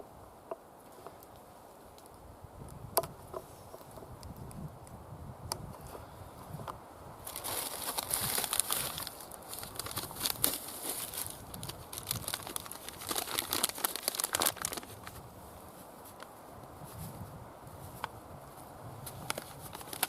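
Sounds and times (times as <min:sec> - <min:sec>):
crinkling handling noise: 0:07.2 - 0:20.0.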